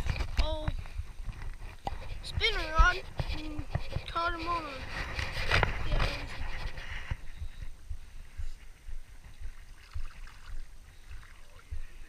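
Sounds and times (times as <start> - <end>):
faint water trickle: 9.3 - 12.0
water lapping against boat hull: 9.4 - 11.8.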